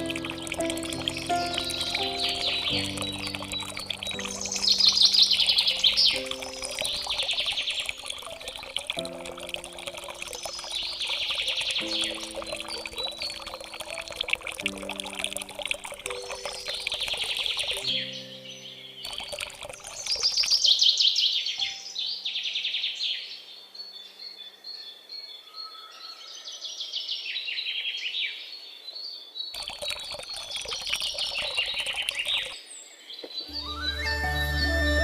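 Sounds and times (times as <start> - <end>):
birds singing trills and chirps: 0.0 - 9.2, 10.3 - 15.1, 16.1 - 35.0
rushing splashy noise: 0.0 - 18.0.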